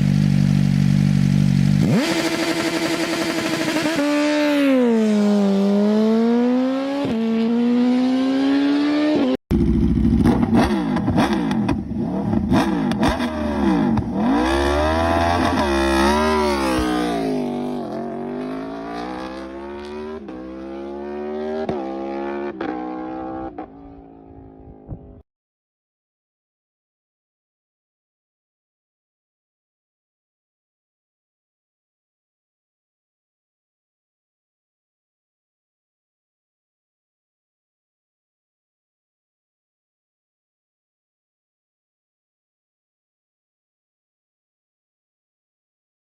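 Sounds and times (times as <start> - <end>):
engine running and revving: 0.0 - 25.2.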